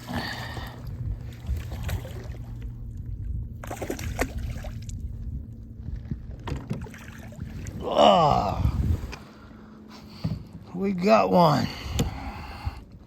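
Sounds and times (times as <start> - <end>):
steady low rumble: 0.0 - 13.0
water sloshing against kayak: 0.0 - 13.0.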